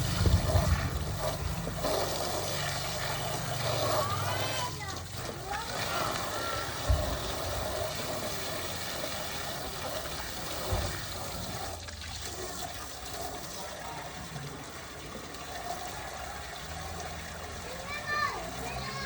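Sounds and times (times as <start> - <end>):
water pouring and splashing: 0.0 - 19.0
low thump: 6.8 - 7.5.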